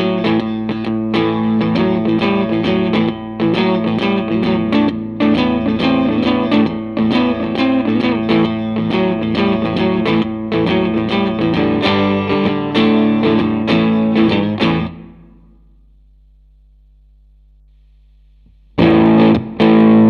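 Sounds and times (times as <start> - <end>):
electric guitar with effect: 0.0 - 15.6, 18.5 - 20.0
steady low hum: 14.7 - 18.9.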